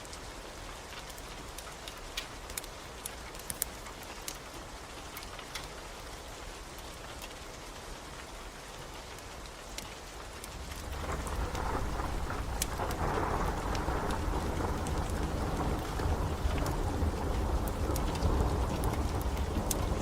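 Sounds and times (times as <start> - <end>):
steady rain: 0.0 - 20.0
wood fire crackling: 0.0 - 20.0
low rumble of thunder: 10.6 - 20.0.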